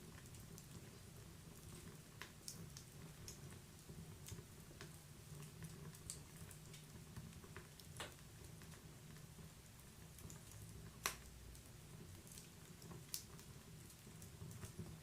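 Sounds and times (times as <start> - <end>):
wood fire crackling: 0.0 - 15.0
sharp pops and snaps: 7.7 - 8.2, 10.2 - 11.6.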